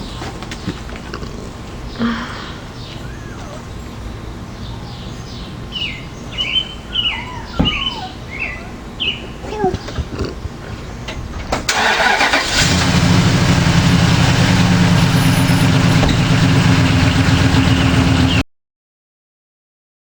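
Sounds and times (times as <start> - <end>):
birds chirping faintly: 0.0 - 11.7
pickup engine cranking and idling: 11.0 - 18.4.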